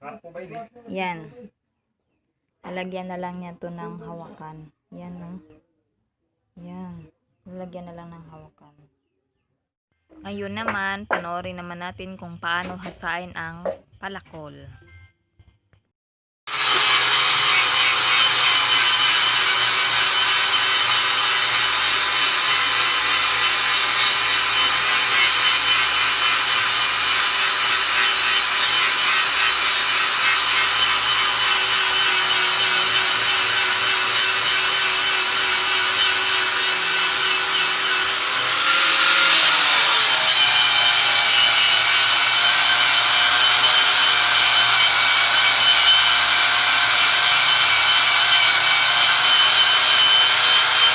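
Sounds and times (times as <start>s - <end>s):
electric grinder motor whine: 16.5s - 50.9s
grinding disc rasping on steel: 16.5s - 50.9s.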